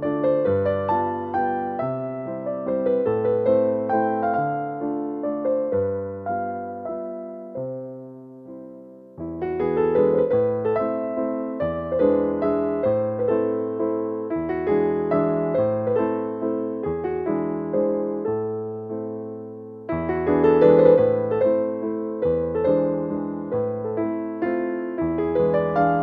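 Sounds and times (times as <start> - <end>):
gentle slow piano music: 0.0 - 26.0.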